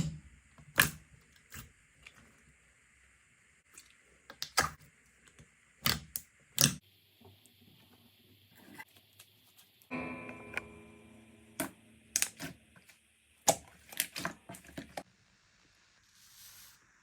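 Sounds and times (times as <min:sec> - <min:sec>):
slime squishing with pops: 0:03.7 - 0:04.8, 0:13.4 - 0:15.0.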